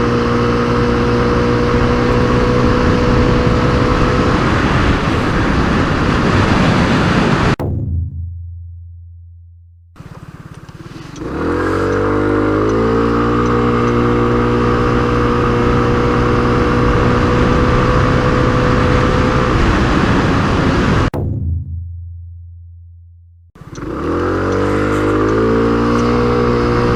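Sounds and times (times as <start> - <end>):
scooter engine revving: 0.0 - 6.2, 10.0 - 20.6, 23.6 - 26.9.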